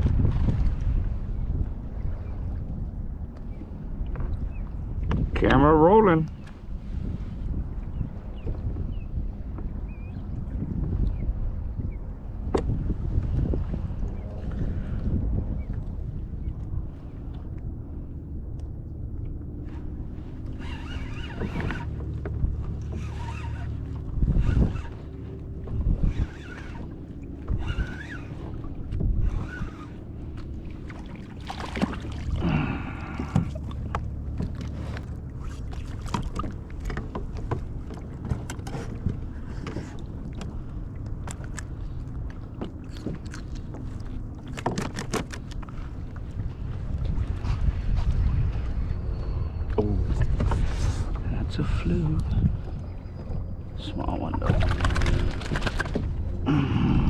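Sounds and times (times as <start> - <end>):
wind and water rumble: 0.0 - 57.0
knocks against hull: 12.4 - 13.2, 30.4 - 32.4, 33.0 - 35.1, 44.4 - 45.7
water splashes: 19.6 - 48.2, 53.8 - 57.0.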